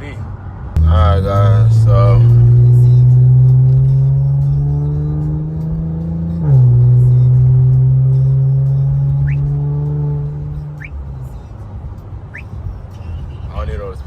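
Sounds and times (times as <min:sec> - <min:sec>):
car engine droning inside cabin: 0:00.8 - 0:11.6.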